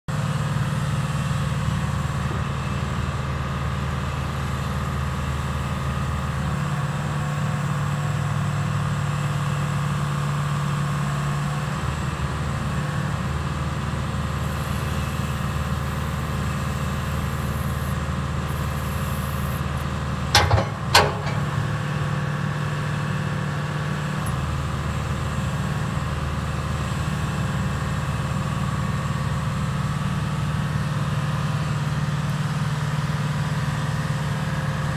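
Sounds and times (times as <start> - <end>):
excavator engine running: 19.1 - 22.4
sharp knocks: 20.4 - 21.8.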